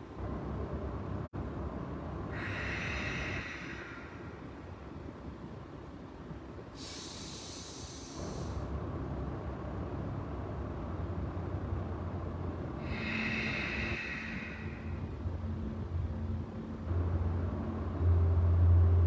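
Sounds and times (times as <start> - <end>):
person breathing deeply: 2.3 - 4.7, 6.8 - 8.7, 12.7 - 15.2
low rumble: 8.2 - 19.0.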